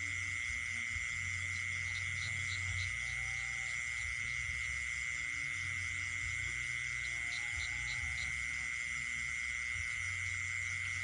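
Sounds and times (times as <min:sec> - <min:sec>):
steady high insect trill: 0:00.0 - 0:11.0.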